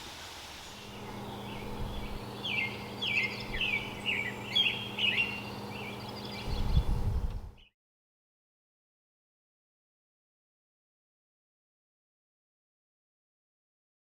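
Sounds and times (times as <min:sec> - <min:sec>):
bird chirping: 0:00.6 - 0:07.7
steady low hum: 0:00.6 - 0:07.7.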